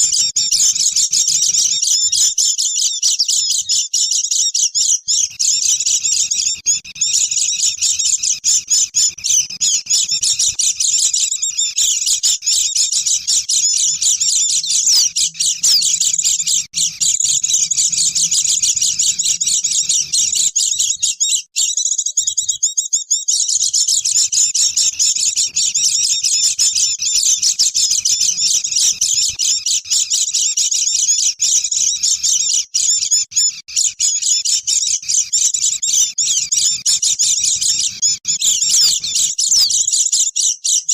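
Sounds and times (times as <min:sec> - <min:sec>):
birds chattering and twittering: 0:00.0 - 0:40.9.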